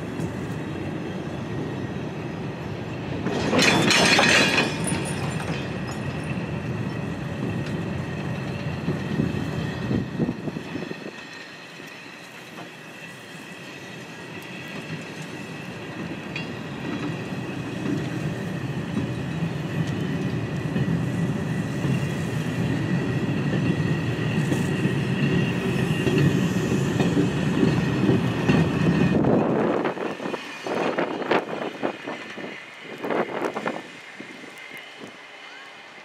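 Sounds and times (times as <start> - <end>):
train wheels clickety-clack: 0.0 - 1.8, 2.8 - 35.2
train wheels squealing: 0.0 - 36.0.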